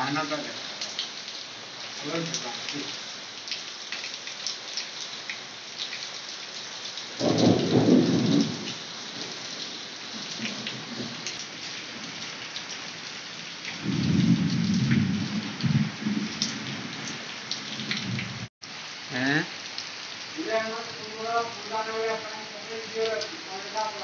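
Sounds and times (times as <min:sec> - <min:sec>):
heavy rain: 0:00.0 - 0:24.0
water streaming off roof: 0:00.0 - 0:24.0
low thunder rumbles: 0:07.2 - 0:09.4, 0:10.2 - 0:11.2, 0:13.7 - 0:18.5.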